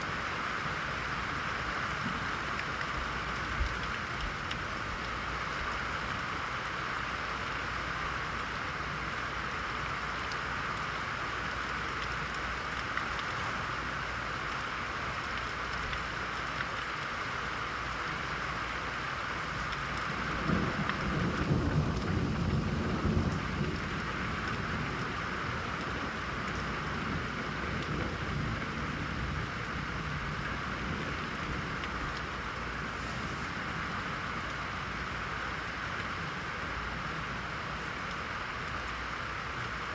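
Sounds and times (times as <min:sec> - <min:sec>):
heavy rain hissing: 0:00.0 - 0:39.9
thunder rumbling: 0:20.1 - 0:35.1.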